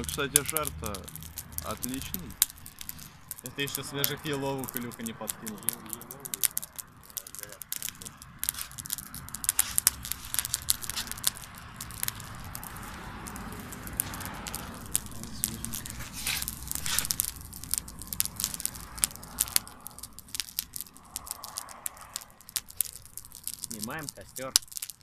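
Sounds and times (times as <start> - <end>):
bonfire crackling and popping: 0.0 - 25.0.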